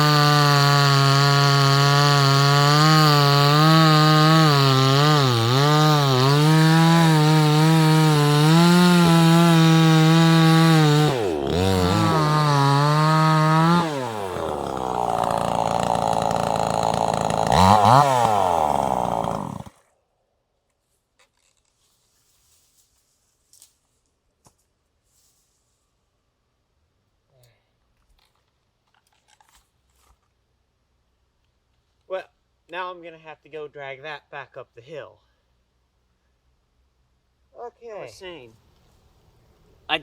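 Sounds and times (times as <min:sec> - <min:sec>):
chainsaw revving: 0:00.0 - 0:19.9.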